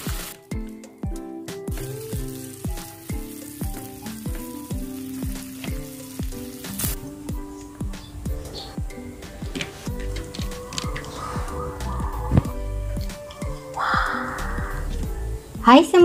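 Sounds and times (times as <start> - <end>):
meat sizzling in a frying pan: 0.0 - 0.7, 1.5 - 8.4
background music with steady beat: 0.0 - 16.0.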